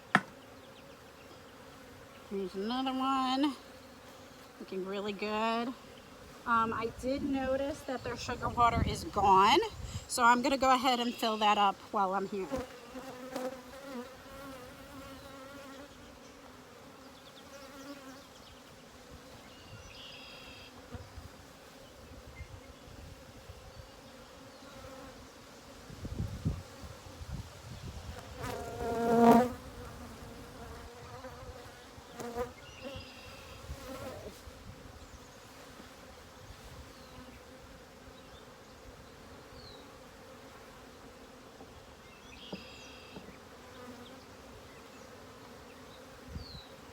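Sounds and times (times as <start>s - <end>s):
honeybees buzzing: 0.0s - 46.9s
bee flying past: 12.2s - 46.9s.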